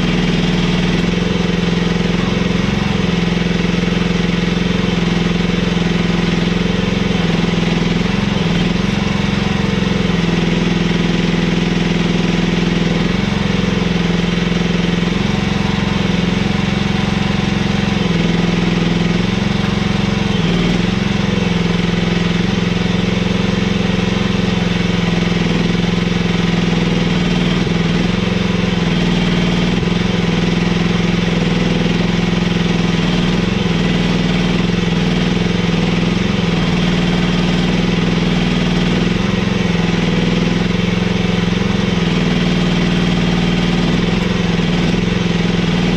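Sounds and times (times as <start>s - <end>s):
mini excavator engine running: 0.0s - 45.9s.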